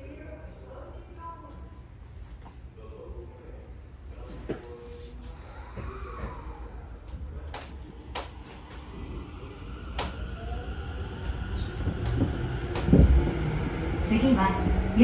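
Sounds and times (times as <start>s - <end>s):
train doors shutting: 4.6s - 14.8s
train inverter whine: 4.6s - 15.0s
train rumble pulling away: 6.0s - 15.0s.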